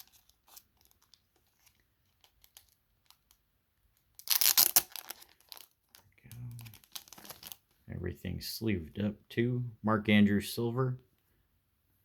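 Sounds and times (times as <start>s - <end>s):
plastic packaging crinkling and tearing: 0.0s - 3.3s, 4.2s - 7.6s.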